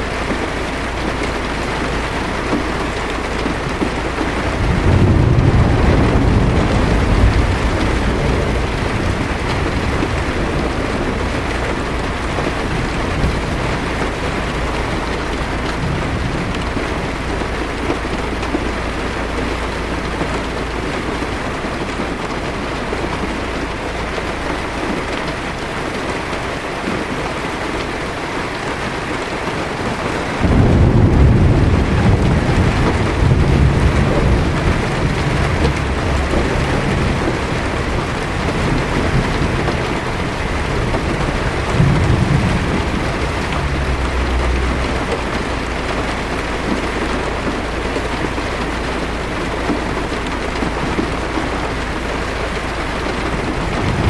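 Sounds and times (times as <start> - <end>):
heavy rain on a car: 0.0 - 54.0
low thunder rumbling: 0.0 - 54.0.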